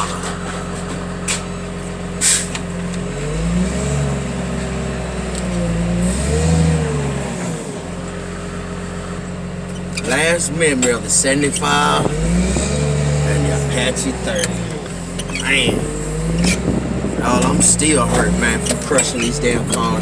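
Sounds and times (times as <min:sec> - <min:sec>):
heavy machine engine revving: 0:00.0 - 0:20.0
short hiss: 0:02.2 - 0:02.6.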